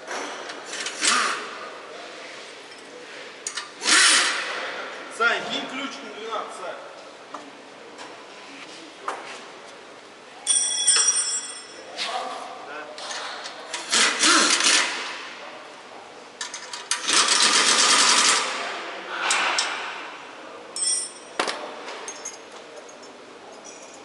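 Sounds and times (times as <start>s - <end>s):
impact wrench rattling on bolts: 13.0s - 15.0s, 16.4s - 18.5s.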